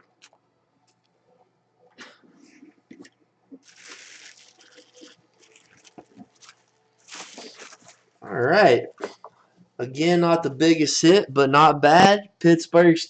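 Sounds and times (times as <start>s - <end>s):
packaging crackling and crinkling: 3.6s - 8.1s.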